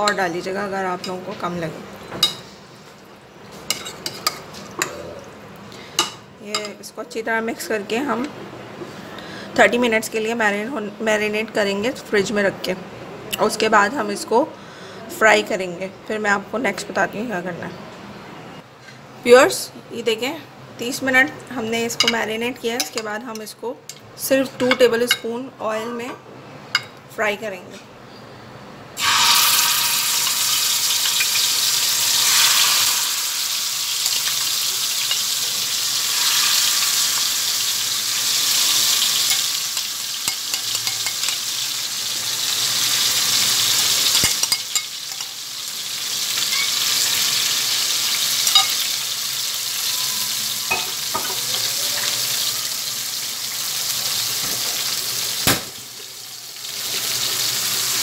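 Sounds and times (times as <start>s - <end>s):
chicken sizzling in hot oil: 29.0s - 58.0s.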